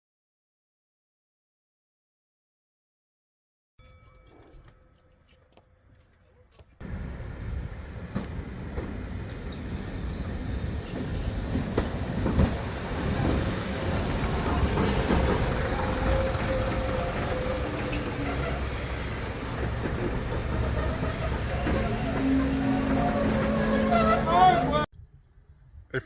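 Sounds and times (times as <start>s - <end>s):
train rumble: 6.8s - 24.9s
wheels squealing on rails: 6.8s - 24.9s.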